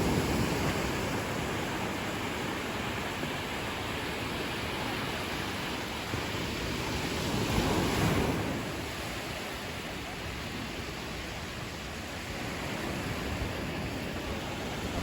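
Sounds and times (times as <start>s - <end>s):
waves washing ashore: 0.0s - 15.0s.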